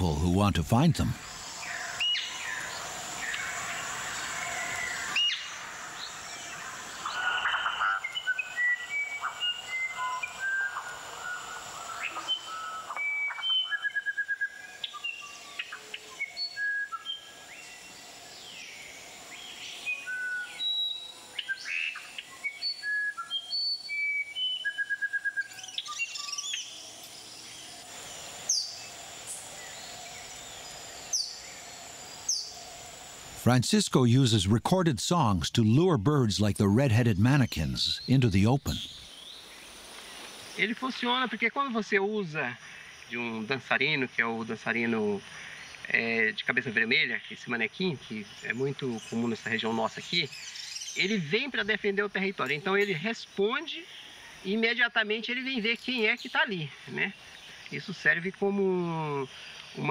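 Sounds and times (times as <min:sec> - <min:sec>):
birds calling: 0:00.0 - 0:41.3.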